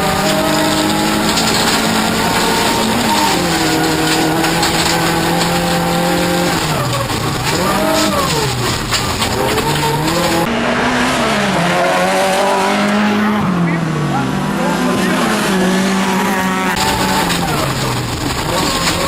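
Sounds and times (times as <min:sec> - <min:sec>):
scattered knocks: 0:00.0 - 0:10.5
racing car engine revving: 0:00.0 - 0:19.0
tyres on gravel: 0:00.0 - 0:19.0.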